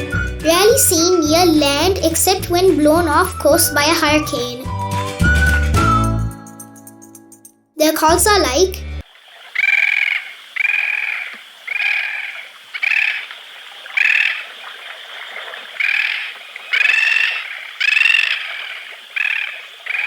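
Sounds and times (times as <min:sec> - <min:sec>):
tern calling: 0:09.0 - 0:20.0.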